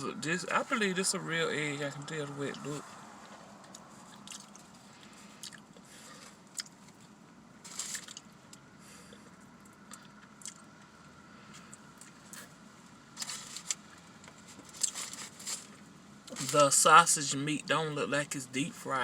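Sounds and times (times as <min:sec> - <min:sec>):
faint steady hum: 0:00.0 - 0:19.0
person chewing food: 0:03.6 - 0:07.2, 0:07.8 - 0:10.7.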